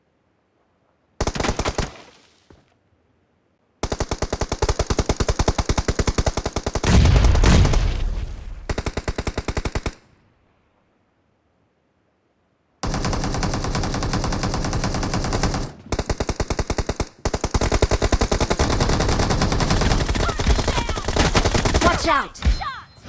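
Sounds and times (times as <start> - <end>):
video game automatic gunfire: 3.8 - 8.0, 12.8 - 22.1.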